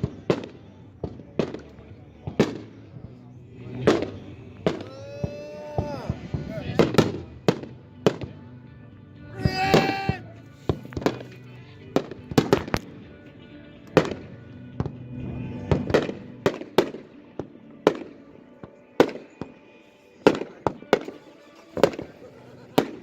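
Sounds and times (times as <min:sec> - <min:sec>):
fireworks bangs: 0:00.0 - 0:08.4, 0:09.4 - 0:13.0, 0:13.9 - 0:23.0.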